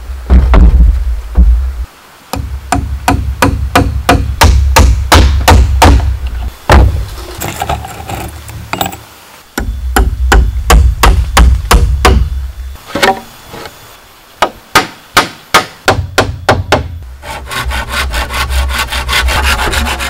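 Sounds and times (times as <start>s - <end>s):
tool striking bamboo: 2.3s - 7.8s, 9.6s - 12.3s, 14.4s - 17.0s.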